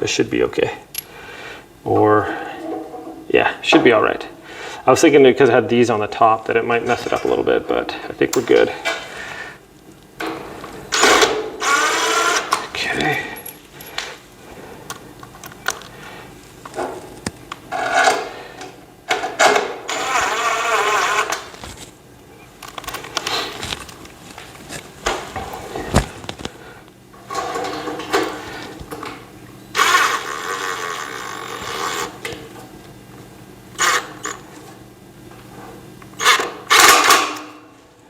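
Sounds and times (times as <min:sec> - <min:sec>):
power screwdriver whirring: 0:11.0 - 0:12.6, 0:19.9 - 0:21.5, 0:29.8 - 0:32.2, 0:33.8 - 0:34.4.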